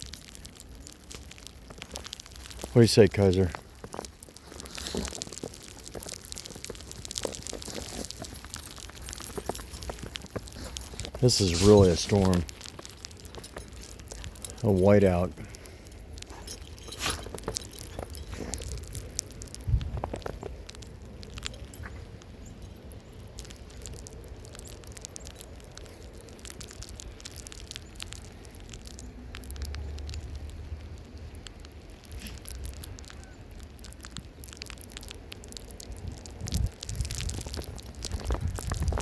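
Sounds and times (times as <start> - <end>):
small crackling ticks: 0.0 - 39.0
wind rumbling on microphone: 17.3 - 22.0, 35.8 - 39.0.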